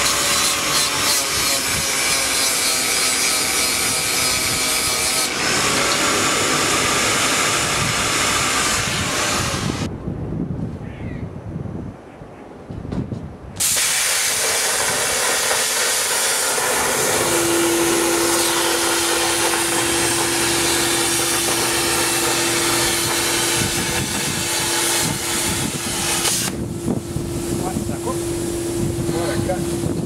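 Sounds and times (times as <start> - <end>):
plasma cutter hissing: 0.0 - 9.9, 13.6 - 26.7.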